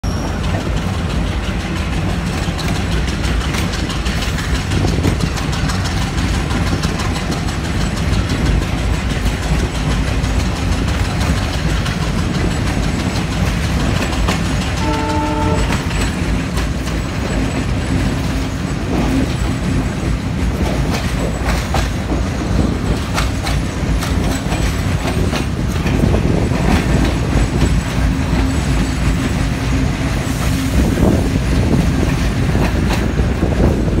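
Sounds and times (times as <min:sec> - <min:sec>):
train rumble: 0:00.0 - 0:34.0
wheels clicking over rail joints: 0:00.1 - 0:34.0
train horn blast: 0:14.8 - 0:15.9.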